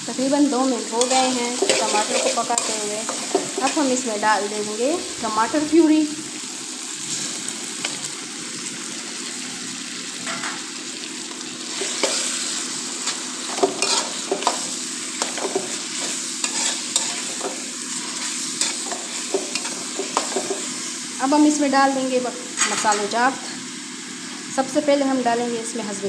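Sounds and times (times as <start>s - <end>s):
food sizzling in a wok: 0.0s - 26.0s
metal spatula scraping pan: 0.9s - 4.0s, 13.0s - 20.7s.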